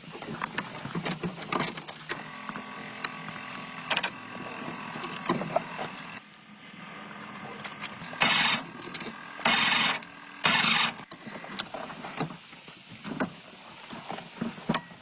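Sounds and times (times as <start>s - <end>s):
mechanical clicks and knocks: 3.9s - 4.2s.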